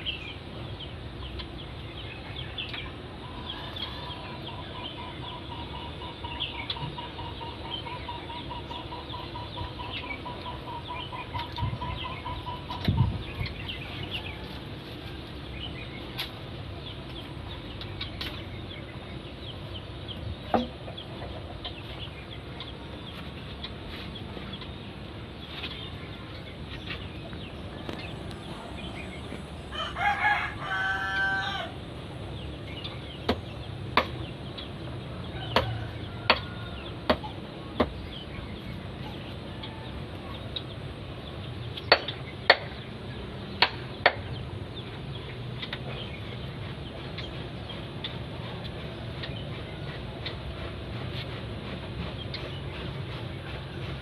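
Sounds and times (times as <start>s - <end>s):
rooster crowing: 29.7s - 31.8s, 35.2s - 37.1s.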